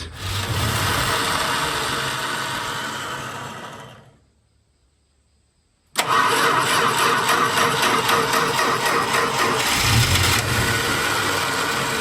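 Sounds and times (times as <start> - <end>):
car engine running: 0.0 - 4.2, 7.6 - 12.0.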